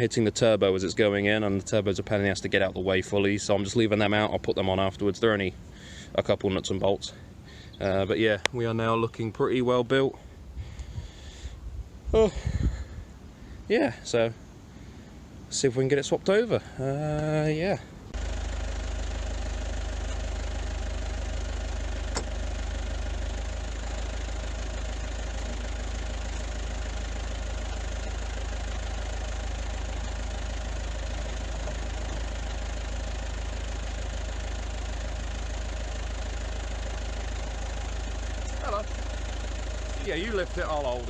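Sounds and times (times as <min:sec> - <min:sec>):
engine idling: 0:00.0 - 0:41.0
sharp click: 0:22.1 - 0:22.3.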